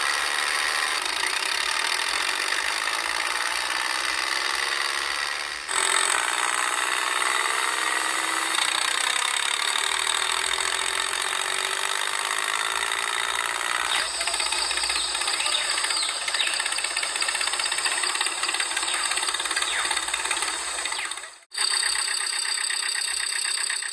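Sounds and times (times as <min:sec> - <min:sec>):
small electric motor whirring: 0:00.0 - 0:23.9
gear noise: 0:13.7 - 0:23.9.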